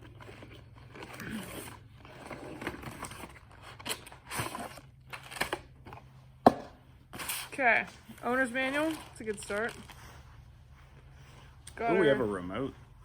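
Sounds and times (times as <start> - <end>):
rustling box and plastic wrap: 7.1 - 10.1.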